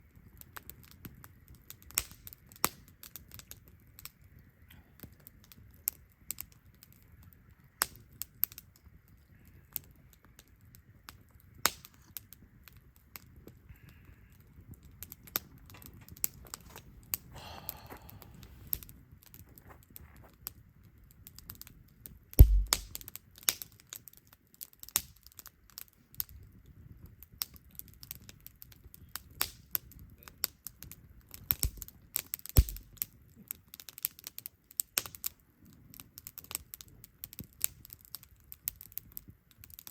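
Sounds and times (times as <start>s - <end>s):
wood fire crackling: 0.0s - 39.9s
heavy thumps: 22.4s - 23.0s, 32.6s - 32.8s
low rumble: 22.4s - 23.0s.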